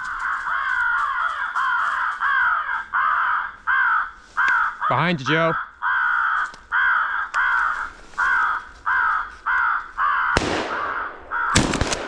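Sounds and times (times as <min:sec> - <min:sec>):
crow cawing: 0:00.0 - 0:11.8
shotgun blast: 0:10.4 - 0:12.0.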